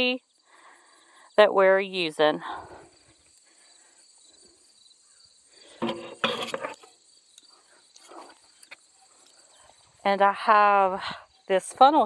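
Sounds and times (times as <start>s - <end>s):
crickets chirring: 0.0s - 12.0s
handling noise: 5.8s - 6.9s.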